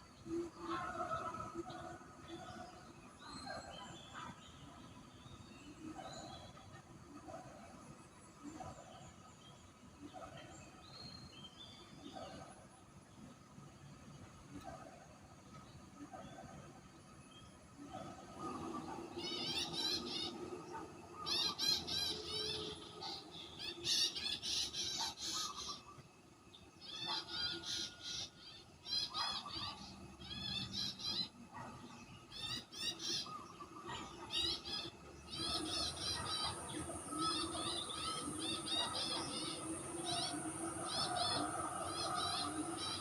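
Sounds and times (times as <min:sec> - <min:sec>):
low forest hum: 0:00.0 - 0:43.0
birds chirping: 0:13.2 - 0:43.0.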